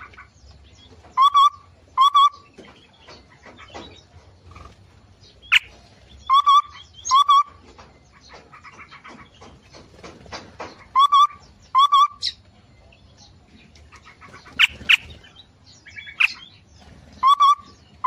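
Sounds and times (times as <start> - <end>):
faint bird chirping: 0.0 - 18.0
loud wavering bird call: 1.2 - 2.5, 5.5 - 7.6, 10.9 - 12.4, 17.1 - 18.0.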